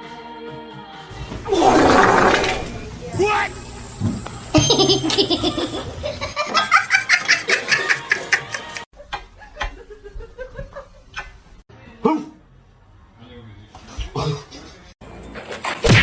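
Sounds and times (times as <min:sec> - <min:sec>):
person laughing: 0:04.6 - 0:11.3.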